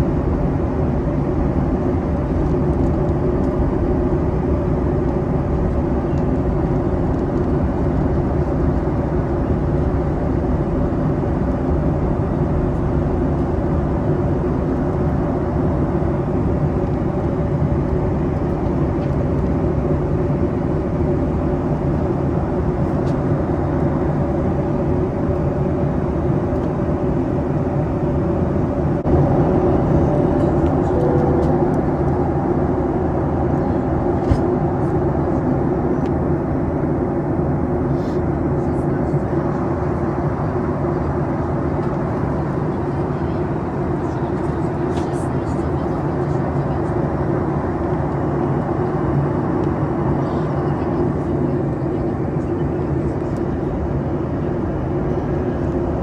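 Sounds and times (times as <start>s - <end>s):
jet engine hum: 0.0s - 56.0s
airplane cabin air rush: 18.8s - 56.0s
low steady tones: 28.7s - 34.9s.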